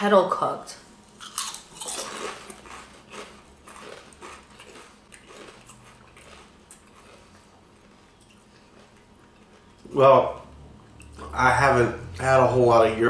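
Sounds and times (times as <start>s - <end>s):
chewing crunchy chips: 1.1s - 11.3s.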